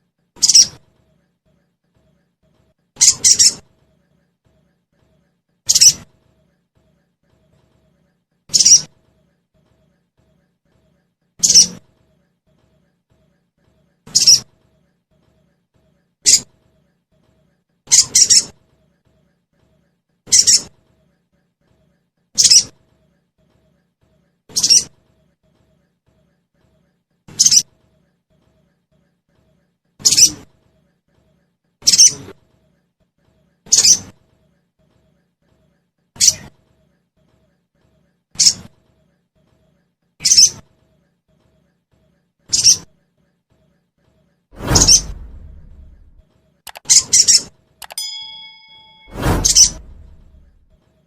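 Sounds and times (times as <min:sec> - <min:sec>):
bird chirping calls: 0:00.4 - 0:00.8, 0:03.0 - 0:03.6.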